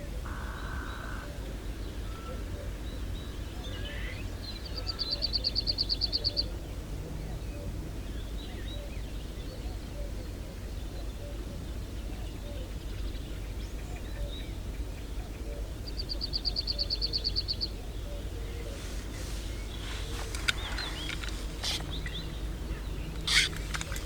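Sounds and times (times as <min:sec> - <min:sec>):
steady low rumble: 0:00.2 - 0:04.7, 0:17.9 - 0:24.0
songbird trilling: 0:00.2 - 0:06.5, 0:16.4 - 0:24.0
faint bird chirps: 0:00.3 - 0:06.5, 0:16.0 - 0:24.0.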